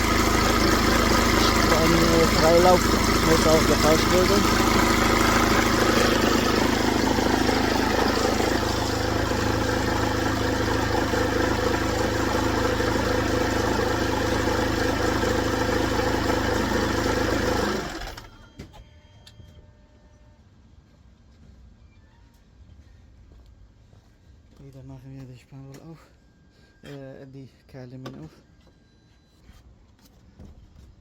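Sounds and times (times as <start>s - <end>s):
car engine idling: 0.0s - 18.4s.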